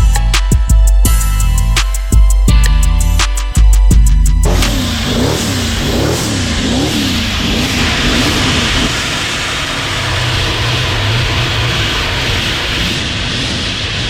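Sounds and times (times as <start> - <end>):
car engine revving: 4.4 - 14.0.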